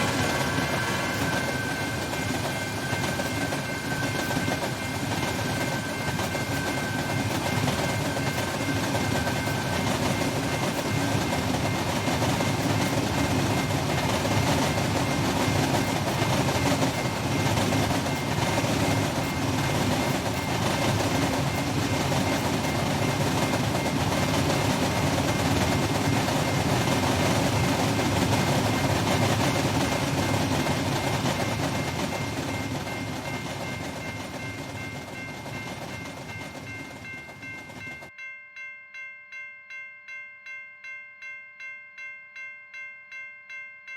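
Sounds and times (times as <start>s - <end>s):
pulsing chime-like tone: 0.0s - 23.8s
freight train rumbling past: 0.0s - 38.1s.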